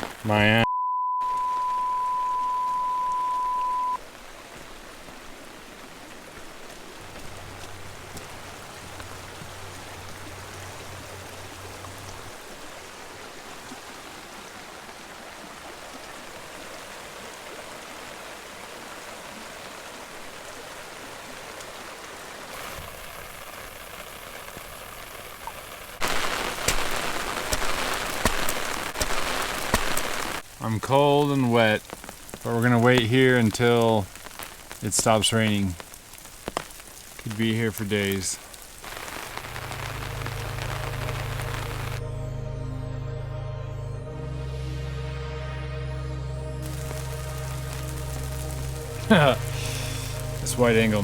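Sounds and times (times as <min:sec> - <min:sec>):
raindrops on umbrella: 0:00.0 - 0:00.6, 0:01.2 - 0:42.0, 0:46.6 - 0:51.0
steady rain: 0:00.0 - 0:00.6, 0:01.2 - 0:42.1, 0:46.5 - 0:51.0
steady beep tone: 0:00.6 - 0:04.0.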